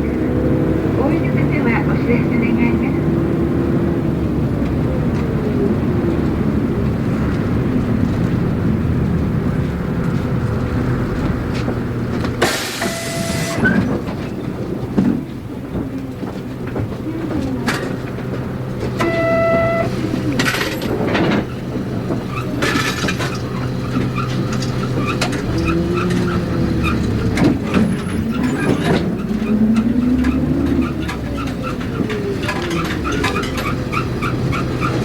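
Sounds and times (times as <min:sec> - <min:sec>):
bus diesel engine accelerating: 0:00.0 - 0:35.0
short pitched tone: 0:12.8 - 0:13.7, 0:19.0 - 0:20.0.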